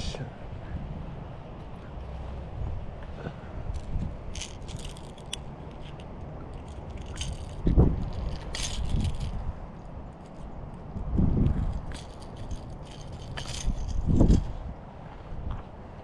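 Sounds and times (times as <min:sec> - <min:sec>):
wind rumble on microphone: 0:00.0 - 0:16.0
fishing pliers clicking and scraping: 0:03.7 - 0:09.4, 0:11.8 - 0:14.0.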